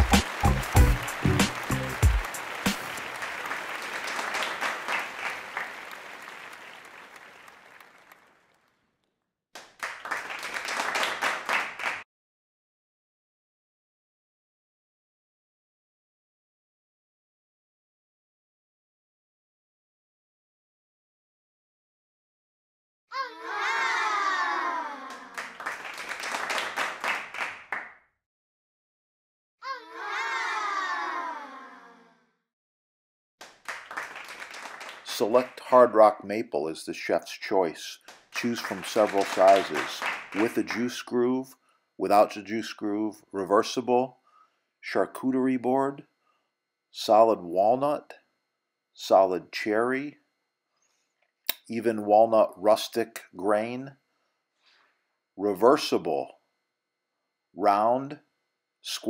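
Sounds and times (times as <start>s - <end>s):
clapping: 0.0s - 8.8s, 9.6s - 12.0s, 25.0s - 28.0s, 33.4s - 35.7s, 38.1s - 40.9s
crowd applauding: 0.0s - 8.8s, 9.6s - 12.0s, 23.9s - 27.9s, 33.4s - 35.9s, 38.1s - 40.9s
whoop falling in pitch: 23.1s - 25.4s, 29.6s - 32.1s.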